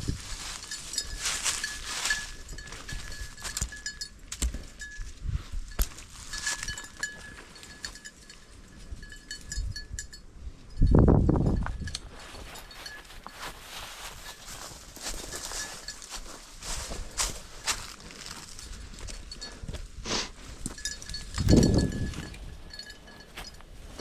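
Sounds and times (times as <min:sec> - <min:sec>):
rustling in brush: 0:00.0 - 0:03.6, 0:12.1 - 0:18.8
footsteps in brush: 0:00.0 - 0:04.9, 0:12.0 - 0:24.0
small bell tinkling: 0:00.3 - 0:17.3, 0:20.6 - 0:24.0.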